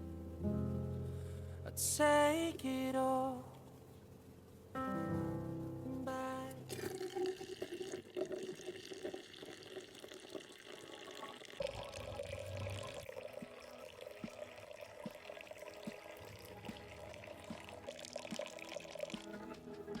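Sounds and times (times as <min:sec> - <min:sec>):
liquid pouring: 0:06.6 - 0:20.0
small drips: 0:06.7 - 0:20.0.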